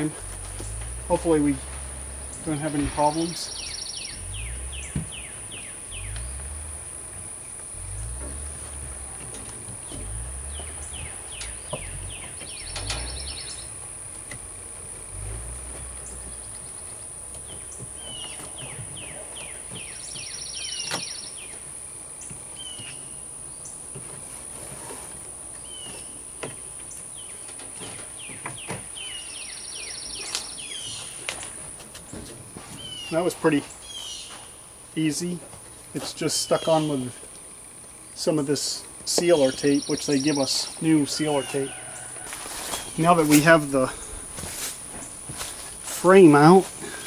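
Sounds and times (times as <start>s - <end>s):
low rumbling: 0.0s - 20.0s, 39.4s - 47.0s
songbird singing with buzzy trill: 3.4s - 6.8s, 9.8s - 13.9s, 16.0s - 21.6s, 22.2s - 23.8s, 25.6s - 31.4s, 32.8s - 34.6s, 38.0s - 44.2s.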